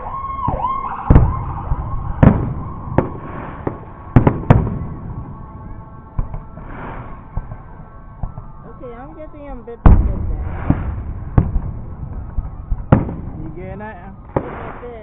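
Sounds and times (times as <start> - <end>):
fireworks bursting with bangs: 0.6 - 15.0.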